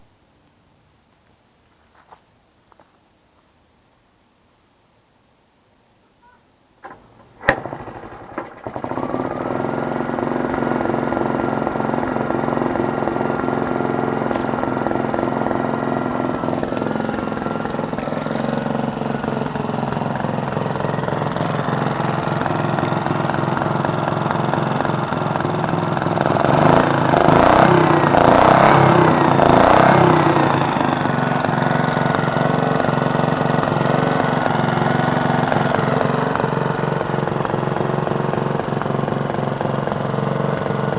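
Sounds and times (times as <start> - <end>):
kick-start knocks: 6.8 - 9.1
small engine running: 7.4 - 40.9.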